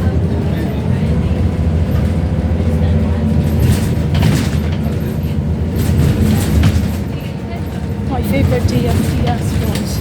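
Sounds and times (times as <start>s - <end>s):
bus engine and road drone: 0.0s - 10.0s
rattles inside bus: 0.0s - 10.0s.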